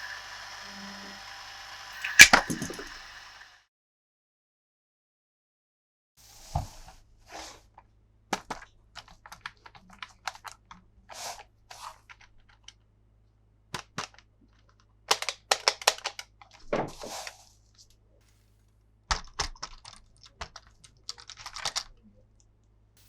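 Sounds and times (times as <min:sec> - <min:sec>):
plastic parts clicking and tapping: 0:13.7 - 0:16.7, 0:19.1 - 0:22.0.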